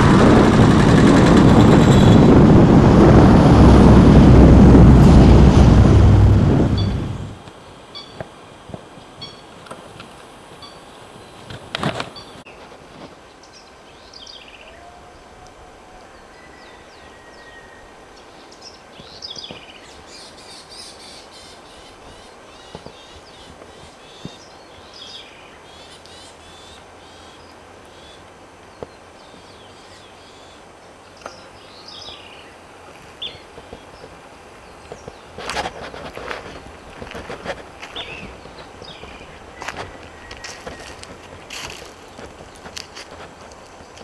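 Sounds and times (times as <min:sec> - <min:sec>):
brief loud noise: 0:00.0 - 0:07.4
wild birds chirping: 0:00.0 - 0:12.6, 0:13.4 - 0:44.0
outdoor background hiss: 0:00.0 - 0:44.0.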